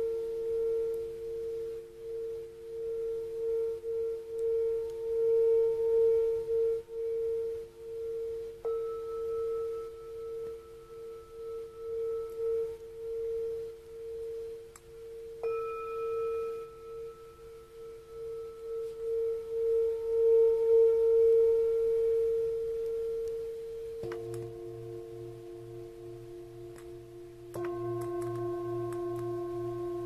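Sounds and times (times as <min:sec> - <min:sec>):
singing bowl ringing: 0:00.0 - 0:30.0
singing bowl strike: 0:24.0 - 0:30.0.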